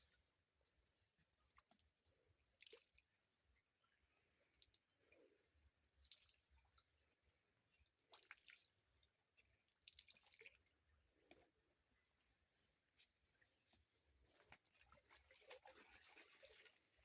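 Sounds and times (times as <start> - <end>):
water dripping and splashing: 8.0 - 8.8, 9.8 - 10.6.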